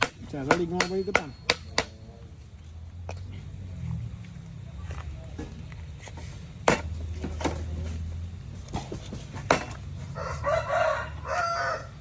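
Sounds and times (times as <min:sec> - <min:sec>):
rooster crowing: 0:10.1 - 0:12.0.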